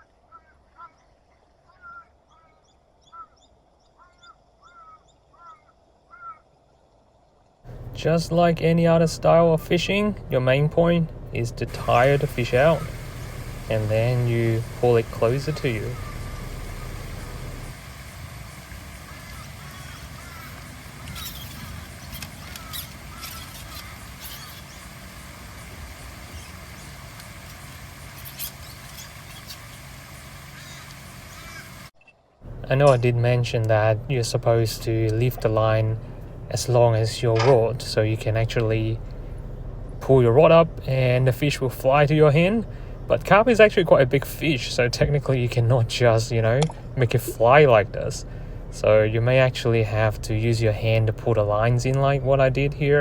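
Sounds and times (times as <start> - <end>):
faint bird calls: 0.0 - 7.4, 10.8 - 32.2
faint chirps: 0.0 - 33.1
low rumble: 7.7 - 19.3, 32.4 - 53.0
small bird high chirps: 18.9 - 29.9.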